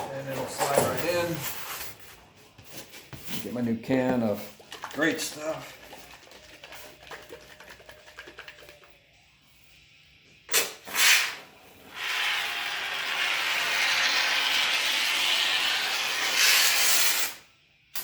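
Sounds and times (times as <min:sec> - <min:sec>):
foam sealant can spraying: 0:10.5 - 0:17.4.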